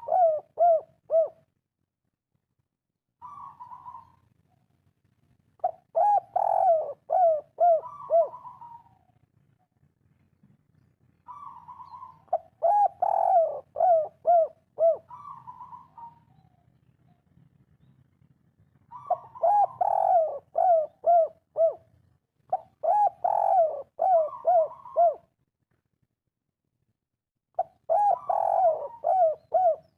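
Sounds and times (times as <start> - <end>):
dove cooing: 0.0 - 1.5, 3.2 - 4.2, 5.6 - 9.2, 11.2 - 16.7, 18.8 - 21.9, 22.5 - 25.3, 27.6 - 29.9.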